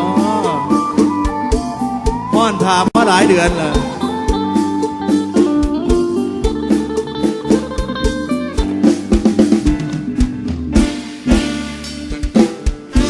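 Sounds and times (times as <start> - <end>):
drum kit beat: 0.0 - 13.0
guitar: 0.0 - 13.0
live band instrumental: 0.0 - 13.0.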